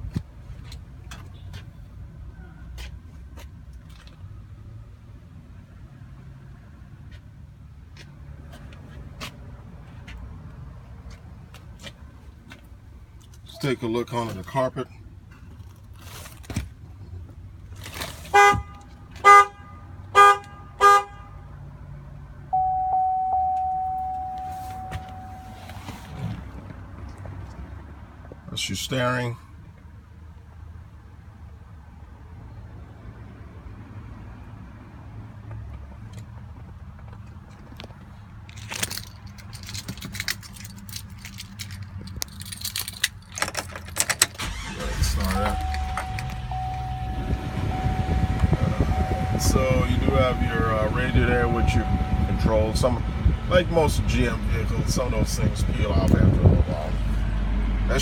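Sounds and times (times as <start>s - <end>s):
car horn honks: 18.3s - 21.4s, 22.5s - 26.0s, 44.4s - 53.2s
long chime tone: 22.5s - 25.8s, 45.2s - 53.1s
low steady hum: 22.5s - 26.2s, 44.8s - 53.7s
keys jangling: 38.5s - 44.4s.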